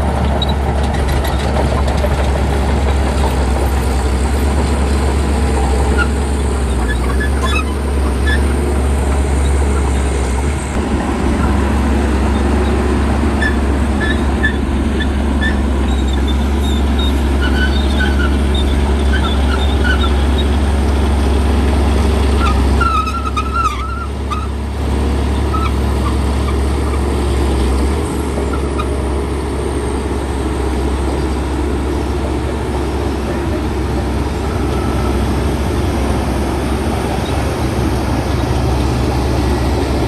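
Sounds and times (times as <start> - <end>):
heavy diesel machinery engine: 0.0 - 40.0.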